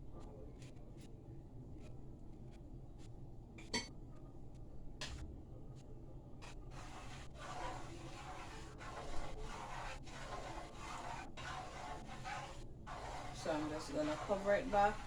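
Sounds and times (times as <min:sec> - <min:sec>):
utensil scraping in cooking pot: 0:06.4 - 0:15.0.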